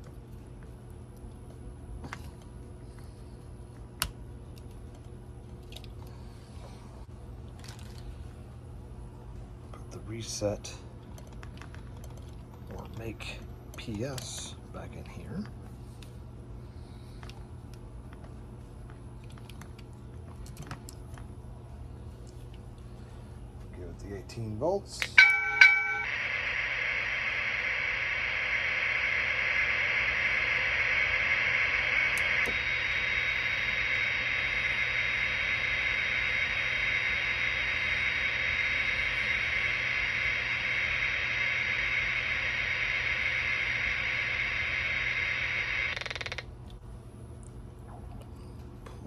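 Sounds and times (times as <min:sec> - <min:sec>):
brief electronic tone: 0:25.2 - 0:46.2.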